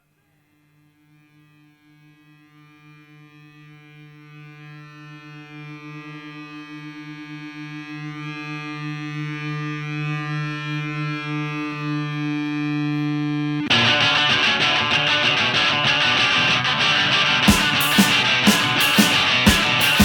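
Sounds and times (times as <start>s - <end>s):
rock band with distorted guitars: 13.7s - 20.0s
sustained electric guitar note: 13.7s - 20.0s.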